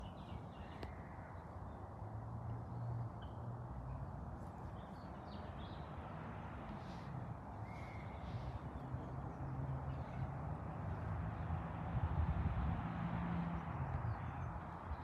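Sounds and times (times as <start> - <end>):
faint bird calls: 7.0 - 8.8.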